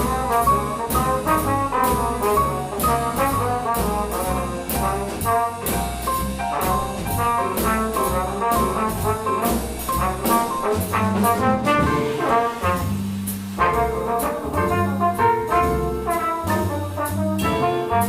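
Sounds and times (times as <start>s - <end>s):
bass trumpet melody: 0.0s - 18.0s
jazz bass piano and drums: 0.0s - 18.0s.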